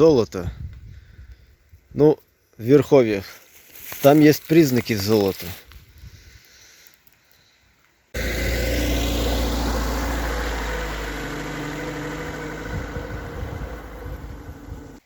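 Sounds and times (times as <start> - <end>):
car engine running: 8.2 - 15.0.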